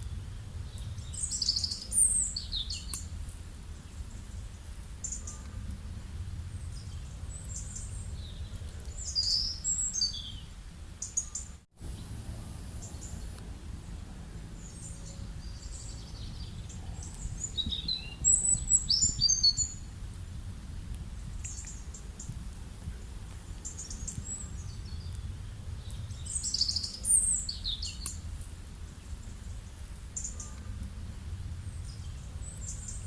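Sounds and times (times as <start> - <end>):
small birds chirping: 0.0 - 19.9, 21.2 - 22.4, 23.6 - 33.0
low background rumble: 11.8 - 33.0.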